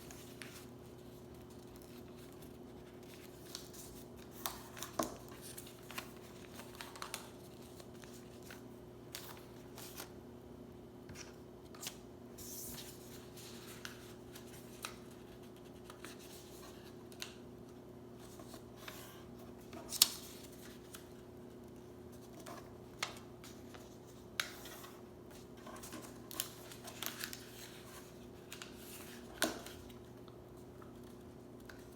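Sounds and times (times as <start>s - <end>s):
paper crinkling and creasing: 0.0s - 10.1s, 11.2s - 17.4s, 18.2s - 31.9s
sharp paper crackle: 25.8s - 30.0s.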